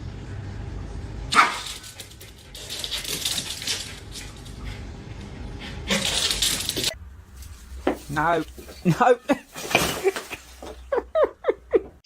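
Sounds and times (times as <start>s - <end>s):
dog barking: 1.3s - 1.8s
rustling scratchy noise: 6.4s - 10.8s.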